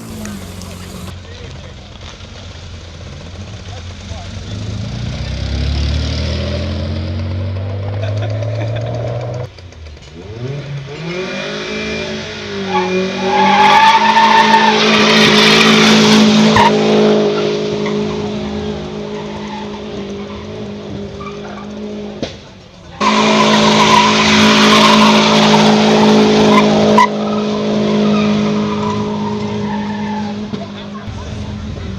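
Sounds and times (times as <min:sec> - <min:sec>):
tyres squealing: 0:00.0 - 0:01.1
car engine revving: 0:00.0 - 0:01.2, 0:02.6 - 0:22.2, 0:23.0 - 0:31.9.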